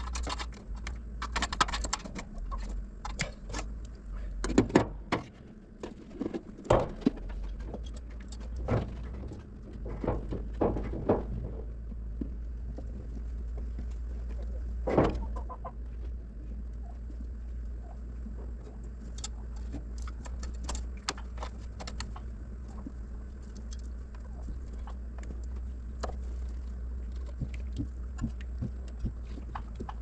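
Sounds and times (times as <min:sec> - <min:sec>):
sharp clicks and knocks: 0:00.0 - 0:12.9, 0:18.4 - 0:22.9
steady low hum: 0:00.0 - 0:30.0.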